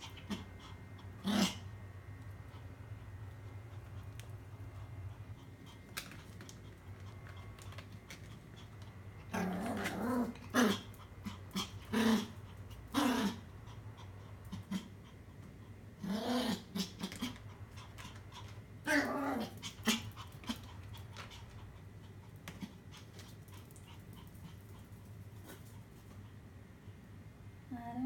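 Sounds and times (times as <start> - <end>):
dog growling: 0.0 - 1.7, 9.2 - 15.0, 16.0 - 18.2, 18.8 - 21.0.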